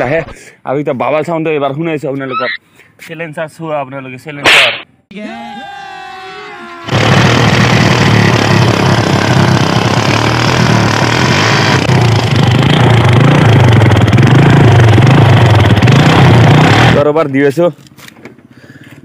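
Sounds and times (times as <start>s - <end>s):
loud motorcycle engine rumble: 6.9s - 17.1s.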